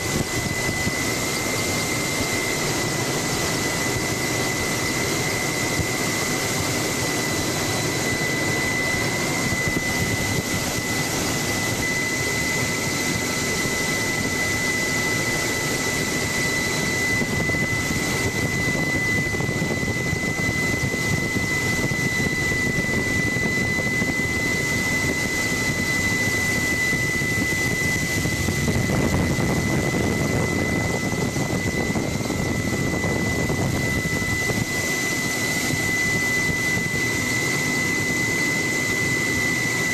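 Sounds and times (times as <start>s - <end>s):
helicopter turbine and rotor noise: 0.0s - 39.9s.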